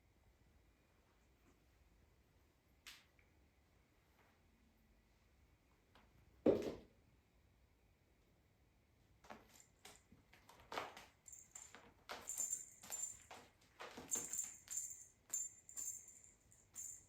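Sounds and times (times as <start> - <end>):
small bell jingling: 11.0 - 17.0.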